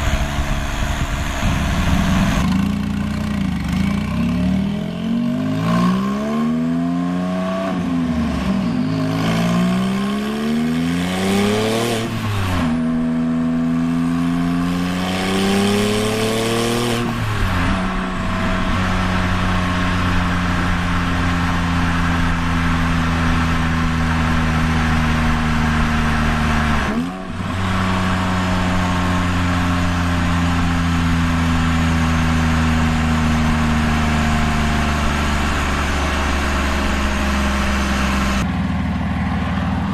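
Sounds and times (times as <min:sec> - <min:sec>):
car engine revving: 0:00.0 - 0:38.5
steady engine drone: 0:00.0 - 0:39.9.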